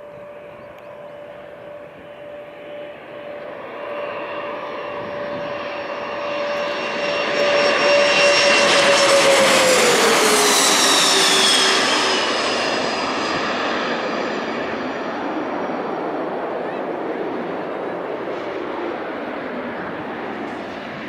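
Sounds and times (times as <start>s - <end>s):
jet airliner passing overhead: 0.0s - 21.0s.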